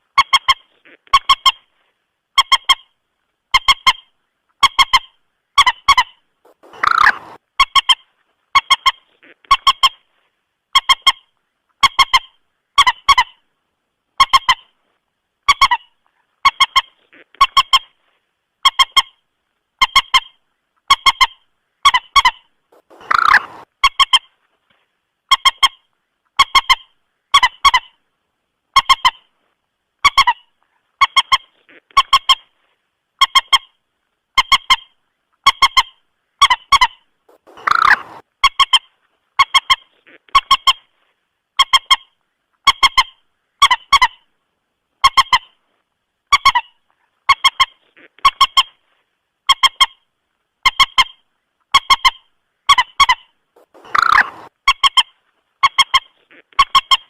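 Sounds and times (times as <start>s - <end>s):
moorhen calls: 5.6s - 8.0s, 21.2s - 23.7s, 36.7s - 38.2s, 52.7s - 54.5s.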